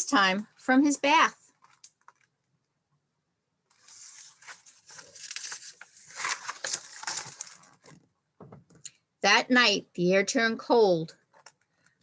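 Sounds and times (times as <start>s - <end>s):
book page rustling and turning: 3.7s - 8.1s.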